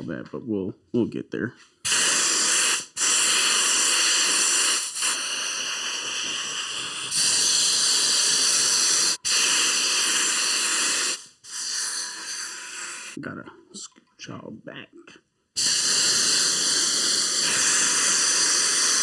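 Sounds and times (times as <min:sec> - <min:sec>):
spray gun hissing: 0:01.8 - 0:13.2, 0:15.6 - 0:19.0.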